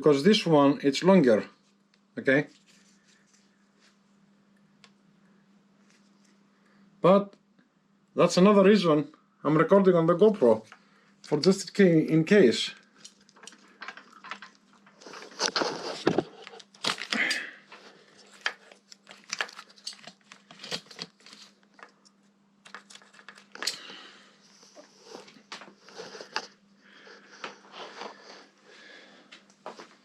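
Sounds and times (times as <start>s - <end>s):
faint steady hum: 0.0s - 30.0s
cloth rustling and crinkling: 13.0s - 21.9s.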